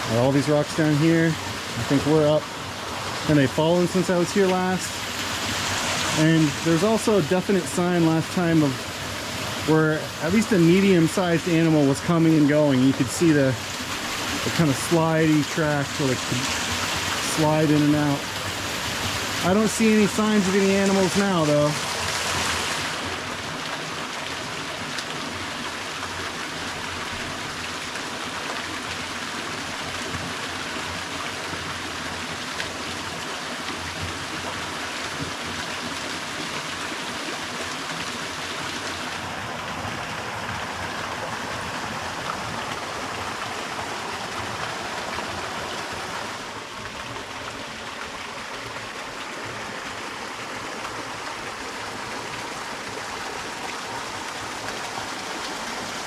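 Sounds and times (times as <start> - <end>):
small waterfall splashing: 0.0 - 56.0.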